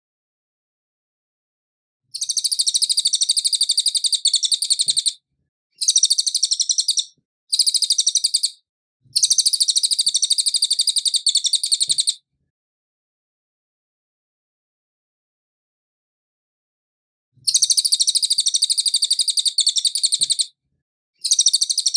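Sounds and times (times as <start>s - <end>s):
songbird singing rapid high notes: 5.8s - 8.6s.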